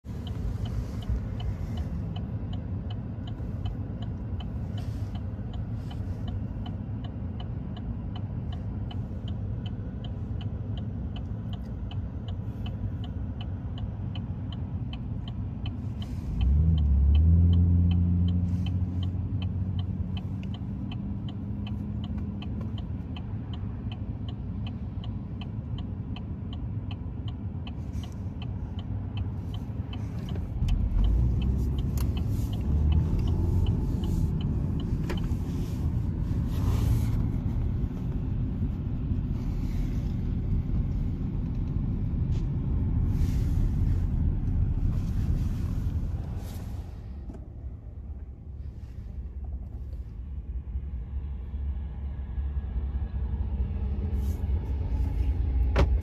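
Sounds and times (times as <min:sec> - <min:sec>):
light regular ticking: 0:00.1 - 0:43.1.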